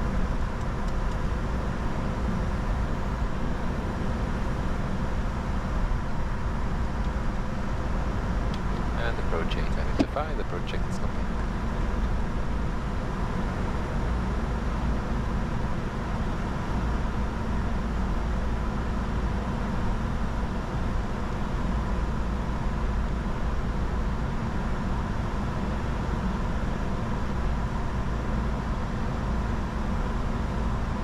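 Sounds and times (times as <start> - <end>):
jet airflow and engine rumble: 0.0 - 31.0
faint steady tone: 1.2 - 6.6.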